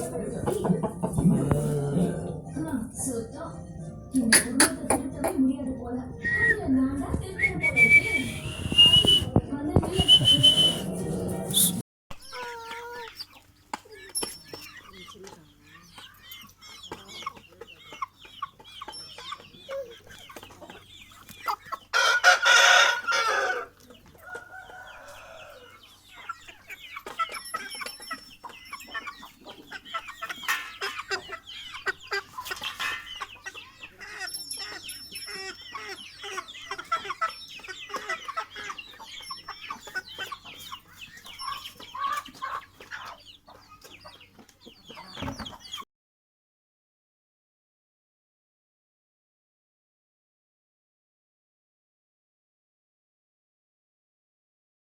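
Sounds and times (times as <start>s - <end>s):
chickens clucking: 0.0s - 45.8s
rooster crowing: 22.0s - 25.8s.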